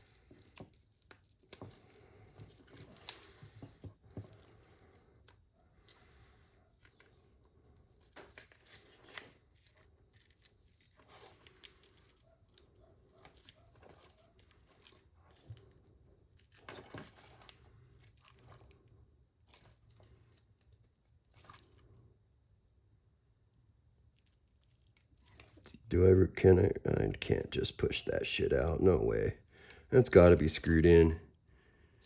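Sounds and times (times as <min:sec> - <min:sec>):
small tools clicking and scraping: 0:00.0 - 0:22.0, 0:24.0 - 0:25.8.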